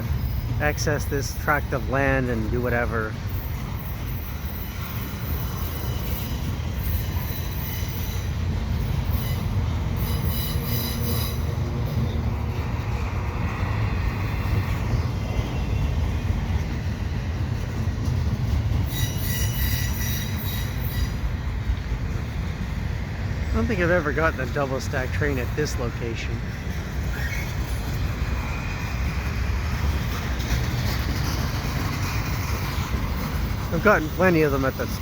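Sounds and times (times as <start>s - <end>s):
train wheels rumbling on rails: 0.0s - 35.0s
high-pitched wheel squeal: 9.0s - 11.5s, 18.8s - 21.3s.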